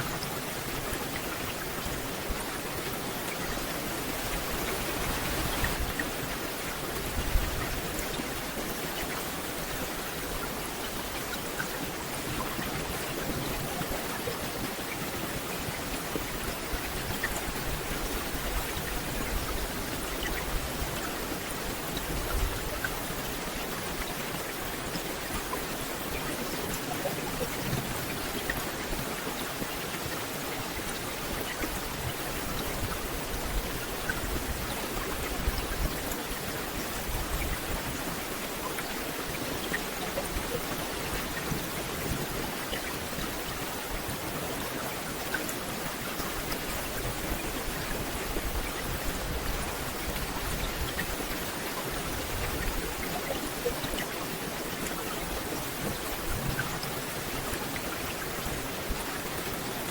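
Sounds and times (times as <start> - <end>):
rain falling on foliage: 0.0 - 59.9.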